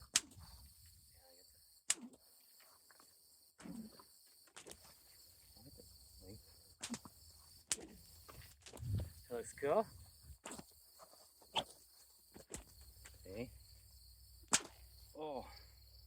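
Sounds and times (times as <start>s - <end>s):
high insect hiss: 0.0s - 16.0s
whip cracks: 0.1s - 0.4s, 1.9s - 2.2s, 4.6s - 4.9s, 6.8s - 7.1s, 7.7s - 8.0s, 14.5s - 14.8s.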